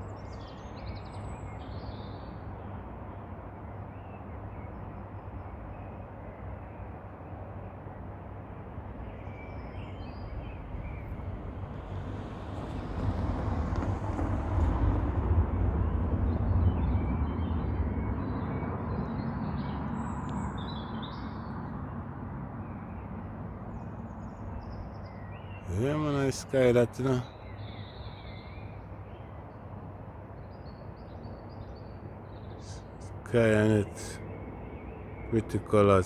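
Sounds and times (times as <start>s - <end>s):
vehicle passing rumble: 8.8s - 20.8s, 25.7s - 27.2s
small birds chirping: 8.9s - 14.8s, 16.3s - 22.0s, 22.6s - 29.4s, 30.5s - 36.0s.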